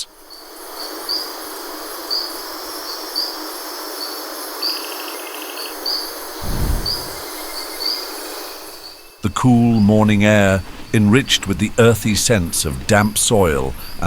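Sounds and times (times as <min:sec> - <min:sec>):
steady hiss: 0:06.1 - 0:10.6
low rumble: 0:06.4 - 0:07.4.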